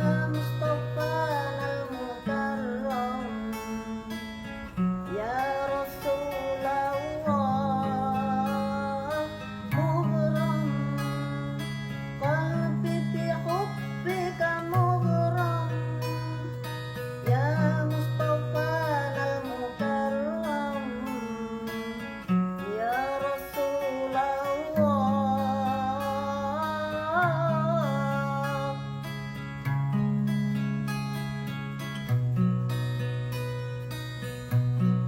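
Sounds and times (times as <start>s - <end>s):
elderly woman singing: 0.0s - 4.1s, 5.1s - 11.6s, 17.2s - 22.0s.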